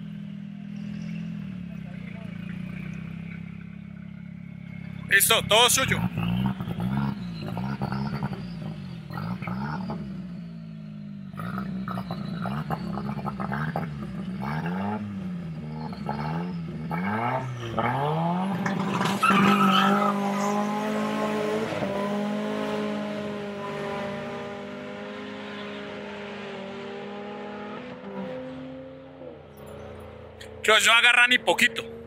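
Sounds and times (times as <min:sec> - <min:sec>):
car engine revving: 0:00.0 - 0:32.0
tyre squeal: 0:06.0 - 0:10.7, 0:11.4 - 0:20.9.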